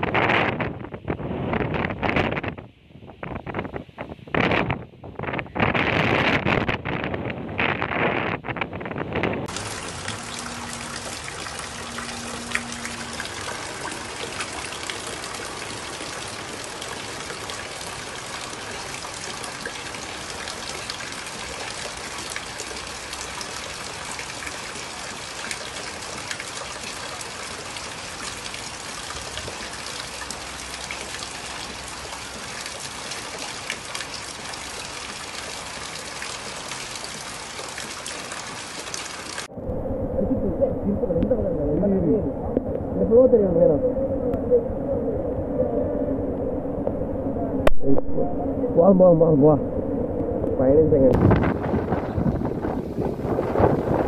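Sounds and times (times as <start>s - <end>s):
water gushing and trickling: 8.8s - 40.0s, 51.2s - 54.0s
heavy rain: 9.4s - 42.2s, 51.1s - 54.0s.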